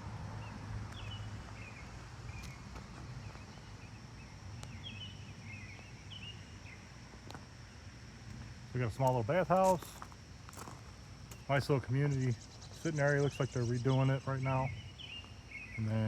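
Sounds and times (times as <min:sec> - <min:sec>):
low hum and hiss: 0:00.0 - 0:16.0
bird chirping: 0:00.4 - 0:07.0, 0:11.3 - 0:16.0.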